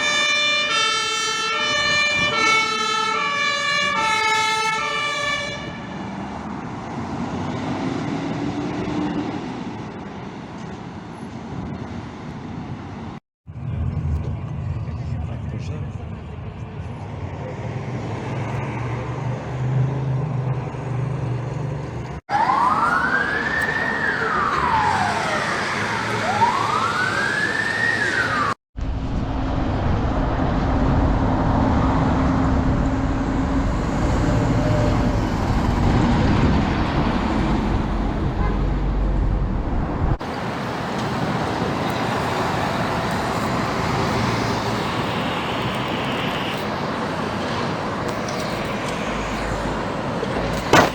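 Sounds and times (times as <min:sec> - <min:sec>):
fire engine siren wailing: 0:00.0 - 0:10.0, 0:22.3 - 0:39.1, 0:40.2 - 0:50.9
engine and road noise: 0:00.0 - 0:50.9.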